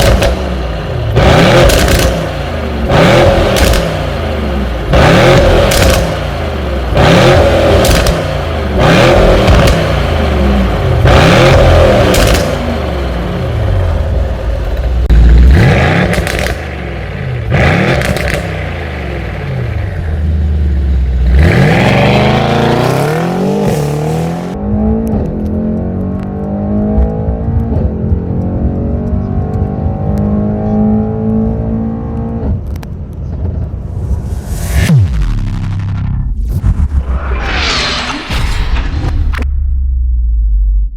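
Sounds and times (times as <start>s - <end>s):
exhaust cracks: 0.0s - 20.2s
car engine revving: 0.0s - 32.7s.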